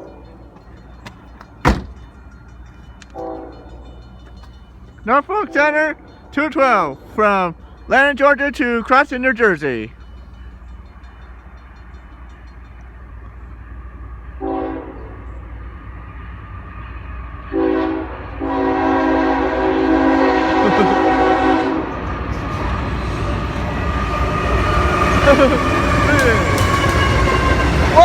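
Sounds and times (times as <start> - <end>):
low rumble of train: 0.0 - 28.0
locomotive air horn blasts: 3.2 - 3.7, 14.4 - 15.2, 17.5 - 21.9.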